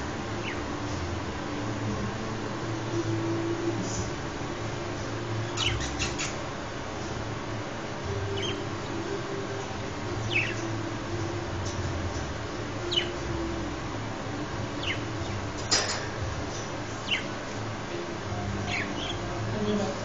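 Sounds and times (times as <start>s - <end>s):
low steady hum: 0.0s - 20.0s
budgerigars chirping: 0.4s - 0.7s, 5.4s - 6.5s, 8.3s - 8.6s, 10.2s - 10.7s, 12.8s - 13.2s, 14.8s - 15.8s, 16.4s - 17.4s, 18.6s - 19.8s.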